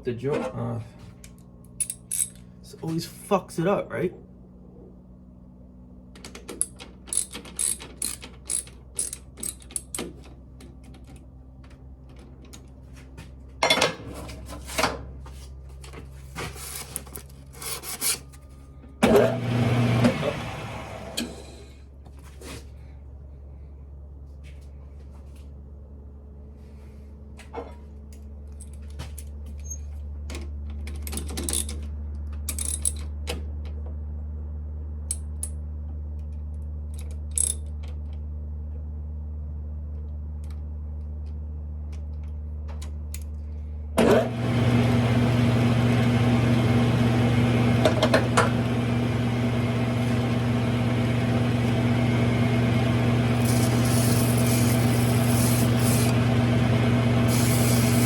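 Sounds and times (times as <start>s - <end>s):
metallic clicks of tools: 1.2s - 2.5s, 6.2s - 10.1s, 32.5s - 33.1s, 35.1s - 35.6s, 36.3s - 38.0s
lathe motor running: 19.0s - 21.8s, 44.0s - 58.0s.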